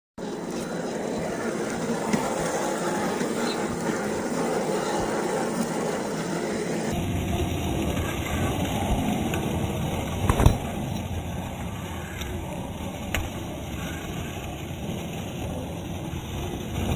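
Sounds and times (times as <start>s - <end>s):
tyres rolling over dirt and rock: 6.8s - 16.9s.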